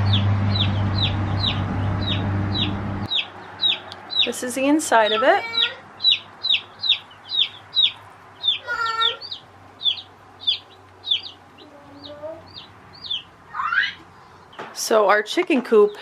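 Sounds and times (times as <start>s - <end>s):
chicks peeping: 0.0s - 14.8s.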